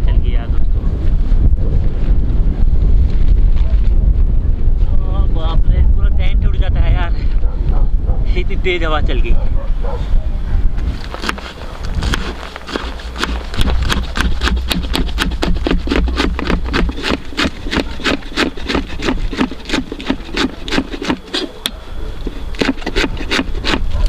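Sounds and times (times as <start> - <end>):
low wind rumble: 0.0 - 24.0
knife chopping on wooden board: 11.2 - 21.5.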